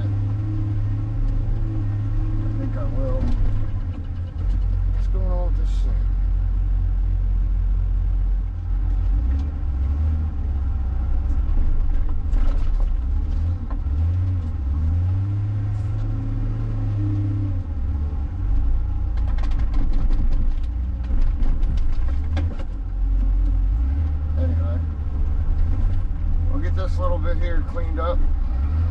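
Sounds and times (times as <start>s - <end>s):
wheel loader diesel engine: 0.0s - 28.9s
metal clanks and rattles: 2.7s - 5.2s, 19.1s - 23.6s.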